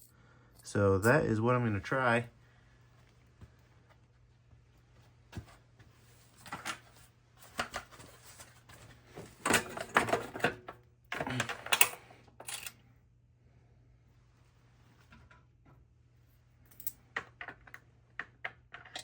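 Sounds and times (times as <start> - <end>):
bolts and washers clattering: 9.4 - 12.8, 16.7 - 19.0.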